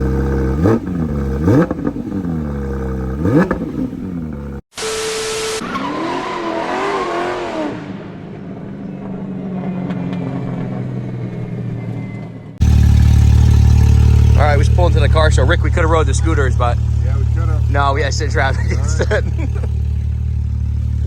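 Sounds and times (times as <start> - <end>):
engine idling: 0.0 - 4.6, 12.6 - 21.0
car engines revving: 0.0 - 21.0.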